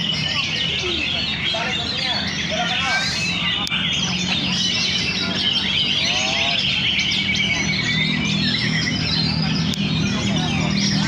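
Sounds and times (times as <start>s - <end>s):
birds singing whistles and chirps: 0.0s - 11.0s.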